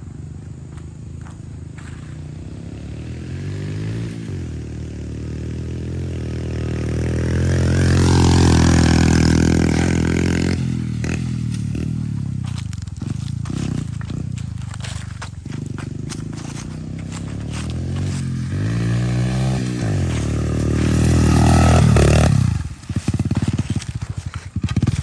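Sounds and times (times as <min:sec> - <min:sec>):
pit bike engine revving: 0:00.6 - 0:25.0.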